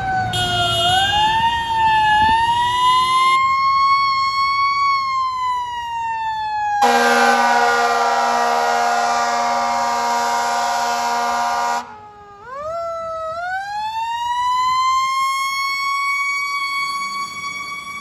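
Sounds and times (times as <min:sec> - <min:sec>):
siren wailing: 0:00.0 - 0:18.0
fire truck horn blast: 0:00.3 - 0:01.7, 0:06.8 - 0:12.0.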